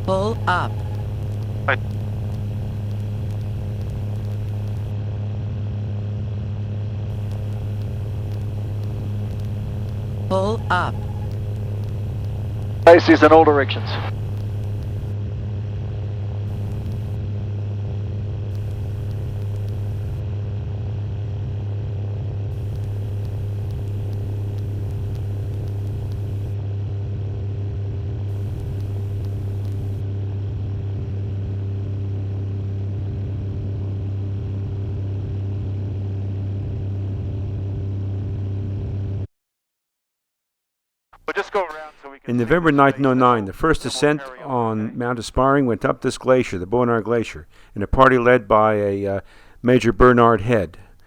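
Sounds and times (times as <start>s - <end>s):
light airplane engine and propeller: 0.0s - 38.5s.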